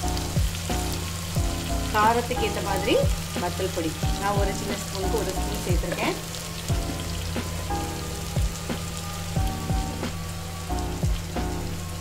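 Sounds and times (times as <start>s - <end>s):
background music with a beat: 0.0s - 2.0s, 2.9s - 4.8s, 6.5s - 12.0s
oil sizzling in a pan: 0.0s - 12.0s.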